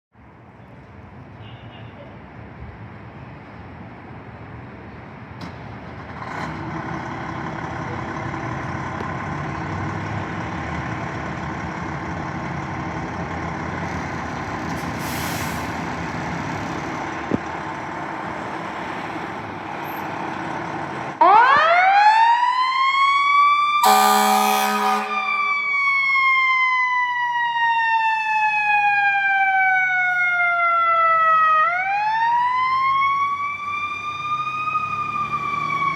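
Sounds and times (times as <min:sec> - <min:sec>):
fire engine running: 0:02.2 - 0:35.9
siren wailing: 0:21.2 - 0:35.9
horn blast: 0:23.8 - 0:26.1.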